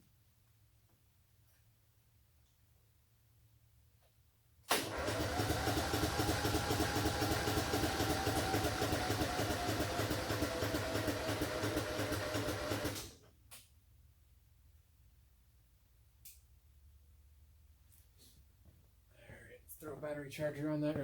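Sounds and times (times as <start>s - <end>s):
electric starter cranking engine: 4.7s - 13.2s.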